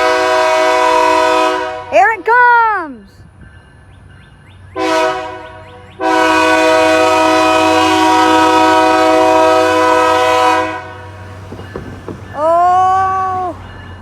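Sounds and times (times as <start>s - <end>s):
locomotive air horn blast: 0.0s - 2.1s, 4.8s - 11.4s.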